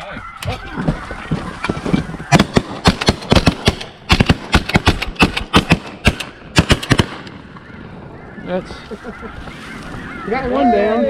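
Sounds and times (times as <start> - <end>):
shotgun blasts: 2.3 - 7.5.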